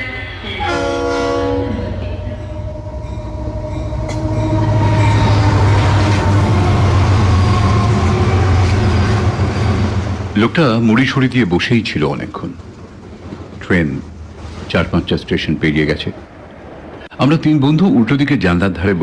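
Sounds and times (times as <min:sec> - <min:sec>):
train horn: 0:00.0 - 0:10.3
moving train rumble: 0:00.0 - 0:19.0.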